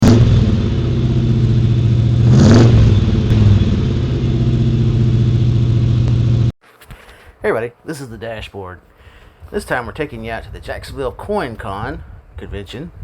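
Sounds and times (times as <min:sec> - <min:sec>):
car engine rumbling: 0:00.0 - 0:06.6.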